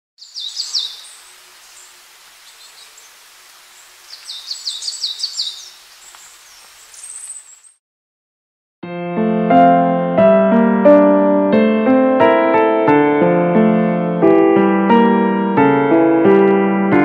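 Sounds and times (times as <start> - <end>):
soft woodland hiss: 0.2 - 7.8
songbird singing: 0.2 - 7.8.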